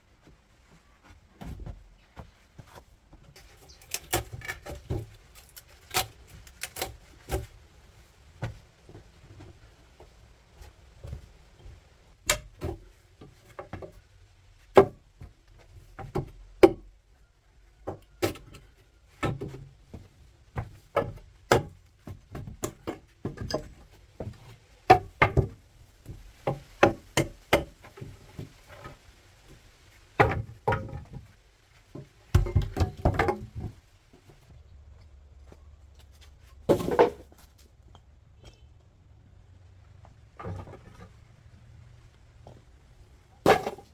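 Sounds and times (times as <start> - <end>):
sharp knocks and taps on brick: 19.2 - 28.5, 31.9 - 33.8.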